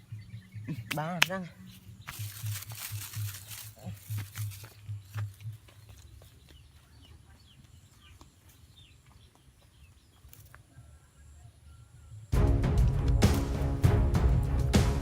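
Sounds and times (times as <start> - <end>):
loud background music: 12.4 - 15.0.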